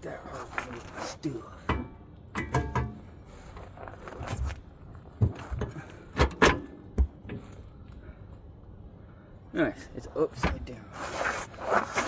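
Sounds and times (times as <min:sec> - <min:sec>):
metal tools clanking and knocking: 0:01.7 - 0:03.0.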